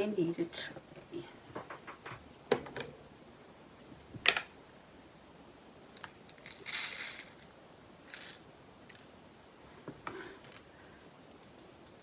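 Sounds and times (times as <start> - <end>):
plastic bag rustling: 5.9 - 7.5, 8.1 - 8.5.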